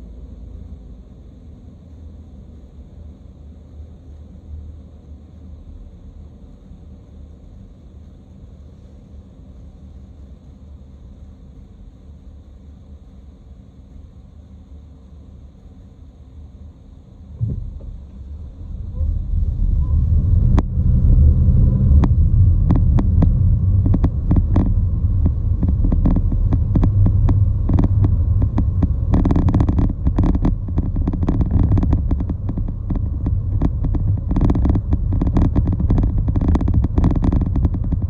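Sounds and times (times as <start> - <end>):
vehicle rumbling in motion: 17.2 - 38.0.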